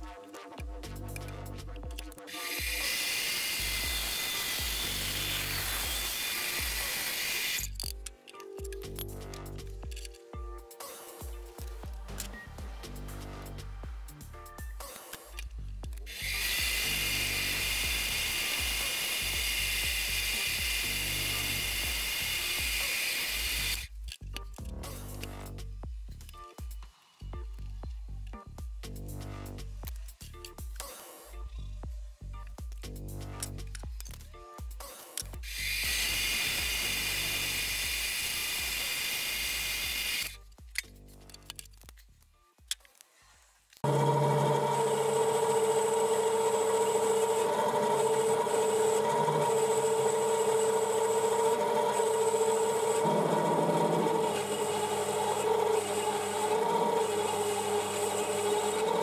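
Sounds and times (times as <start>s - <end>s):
background music with bass line: 0.0s - 2.8s, 7.6s - 16.7s, 23.8s - 35.5s, 40.3s - 42.7s
power tool whining: 2.3s - 7.9s, 16.1s - 23.9s, 35.4s - 40.4s, 43.8s - 59.0s.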